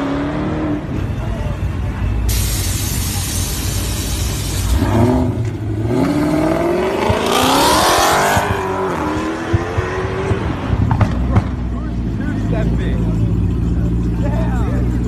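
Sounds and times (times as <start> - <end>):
car engine accelerating hard: 3.2 - 15.0.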